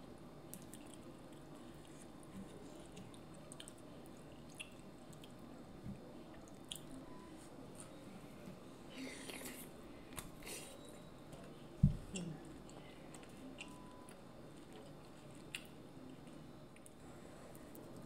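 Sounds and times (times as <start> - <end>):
chewing with wet clicks and smacks: 0.5 - 5.6, 6.3 - 7.0, 11.3 - 17.0.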